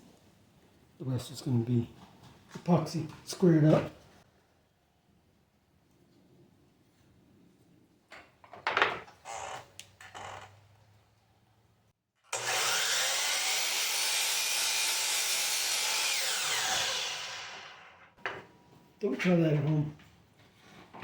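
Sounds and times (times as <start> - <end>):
power saw cutting wood: 12.3 - 18.1.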